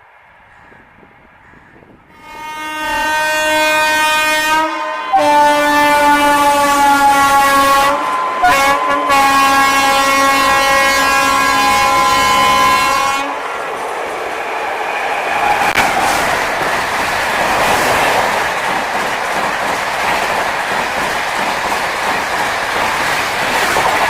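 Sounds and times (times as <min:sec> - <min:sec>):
locomotive horn blasts: 0:02.1 - 0:13.5.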